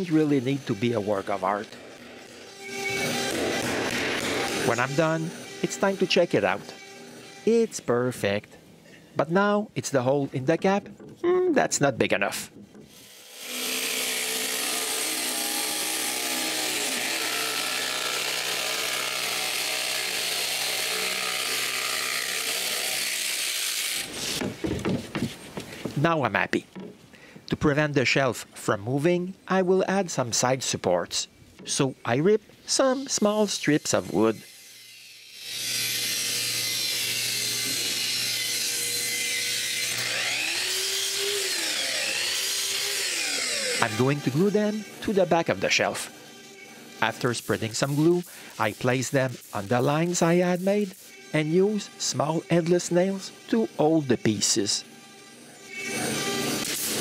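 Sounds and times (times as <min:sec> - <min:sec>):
electric power tool cutting: 0:00.0 - 0:07.8, 0:12.9 - 0:24.4, 0:33.0 - 0:57.0
power saw ripping wood: 0:39.8 - 0:45.1.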